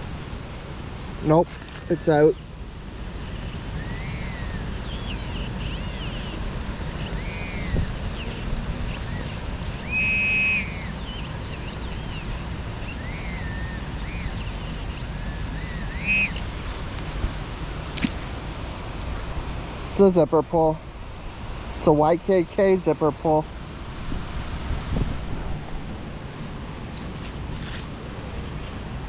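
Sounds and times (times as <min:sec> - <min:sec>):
wind on microphone: 0:00.0 - 0:17.9, 0:23.6 - 0:27.8
metal detector warbling tones: 0:03.3 - 0:16.5
metal detector beep: 0:09.0 - 0:12.3, 0:12.9 - 0:16.4.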